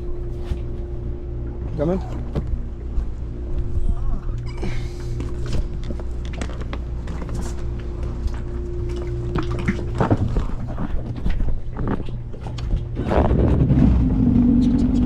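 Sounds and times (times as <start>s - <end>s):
boat engine idling: 0.0s - 15.0s
knocks and bumps in boat: 5.3s - 15.0s.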